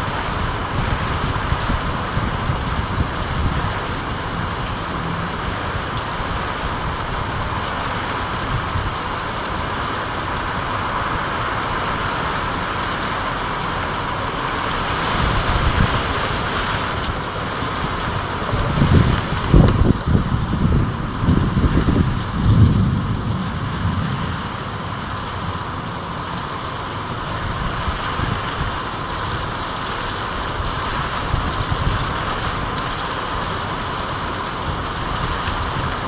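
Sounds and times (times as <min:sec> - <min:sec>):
steady rain: 0:00.0 - 0:36.0
low rumble: 0:18.5 - 0:26.4.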